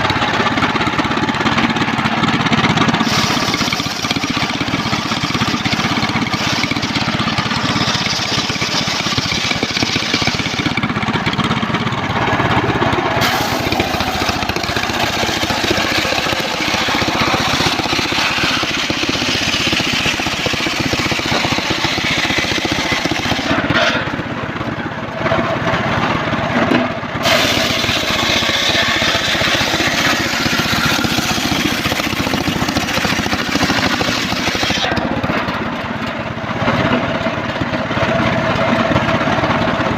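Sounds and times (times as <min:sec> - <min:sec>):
sawmill engine running: 0:00.0 - 0:39.9
saw blade ripping log: 0:03.0 - 0:11.0, 0:13.2 - 0:24.2, 0:27.2 - 0:35.6.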